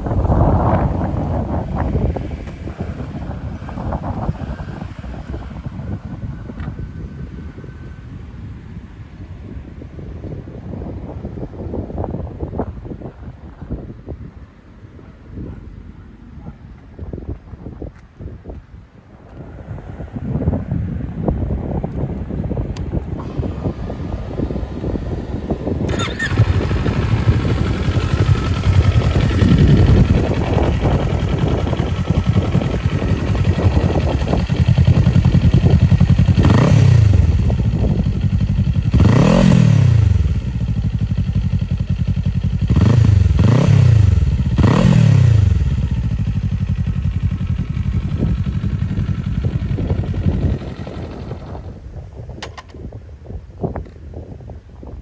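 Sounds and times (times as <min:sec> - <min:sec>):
engine starting and revving: 0:23.2 - 0:51.8.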